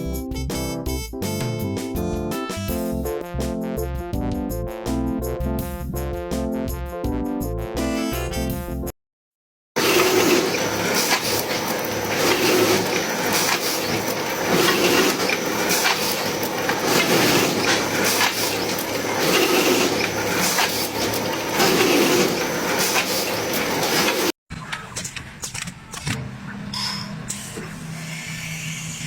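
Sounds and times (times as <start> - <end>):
woodworking machine cutting wood: 9.8 - 24.3.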